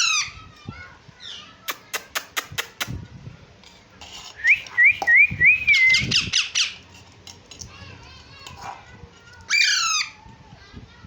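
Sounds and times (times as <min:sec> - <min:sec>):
parakeet screeching: 0:00.0 - 0:00.4, 0:09.5 - 0:10.2.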